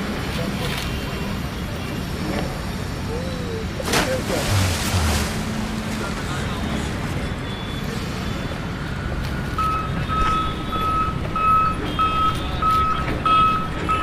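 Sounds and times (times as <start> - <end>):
steady background noise: 0.0 - 14.0
vehicle reversing alarm beeping: 7.2 - 14.0.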